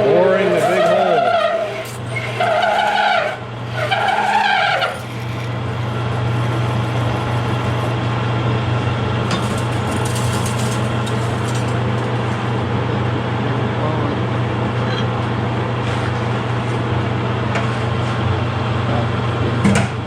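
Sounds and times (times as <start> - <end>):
drill bit squealing: 0.0 - 8.2, 9.3 - 12.6
lathe humming and cutting: 0.0 - 19.4.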